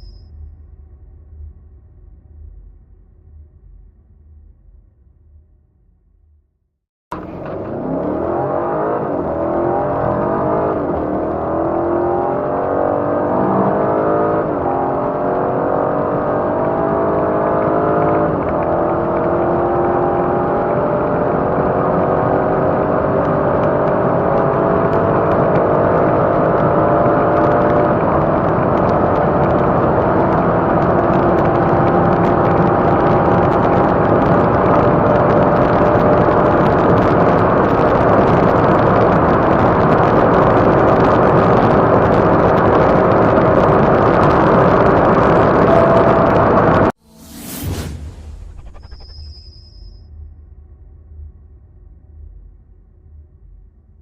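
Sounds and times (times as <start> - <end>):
car engine accelerating: 7.1 - 49.1
wind and road noise: 7.1 - 50.0.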